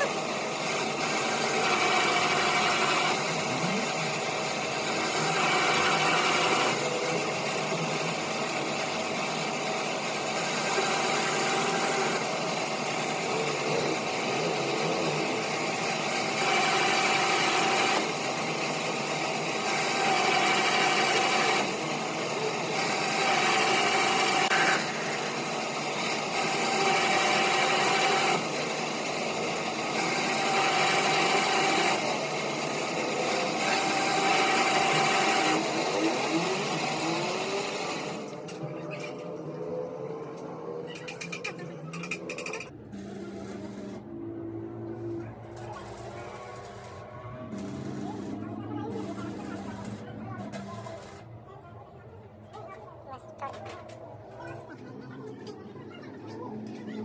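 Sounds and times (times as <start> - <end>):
workshop machine running: 0.0 - 57.0.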